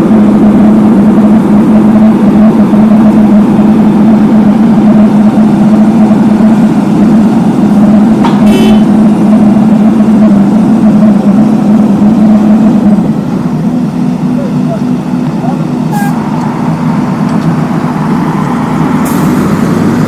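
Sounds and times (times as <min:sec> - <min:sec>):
paving machine engine running: 0:00.0 - 0:20.0.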